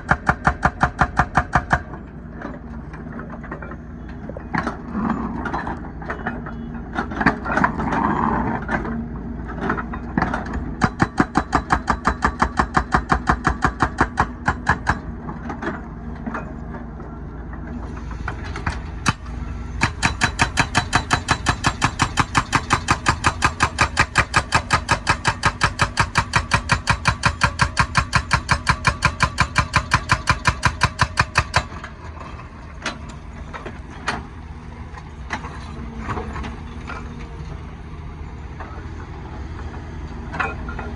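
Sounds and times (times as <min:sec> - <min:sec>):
hydraulic breaker hammering asphalt: 0:00.0 - 0:02.0, 0:09.7 - 0:15.2, 0:19.0 - 0:31.9
diesel engine running: 0:14.2 - 0:26.4, 0:30.3 - 0:40.9.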